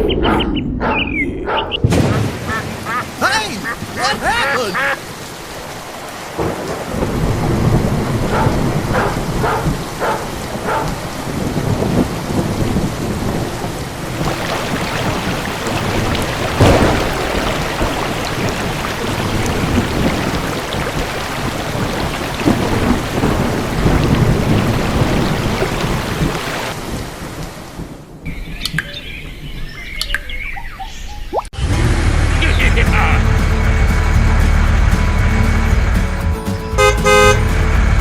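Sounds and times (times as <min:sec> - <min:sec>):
sharp thunderclap: 0:01.8 - 0:02.9, 0:06.3 - 0:28.6
steady rain: 0:01.9 - 0:28.2
rolling low thunder: 0:06.0 - 0:29.6.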